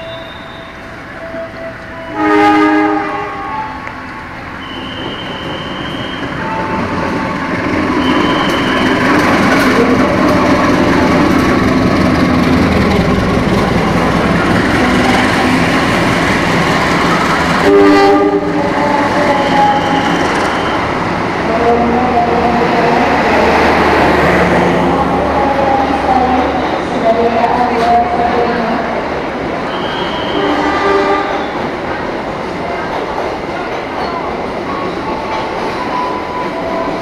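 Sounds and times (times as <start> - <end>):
high wheel squeals: 4.5 - 7.1, 7.8 - 9.6, 19.2 - 21.0, 29.7 - 31.6.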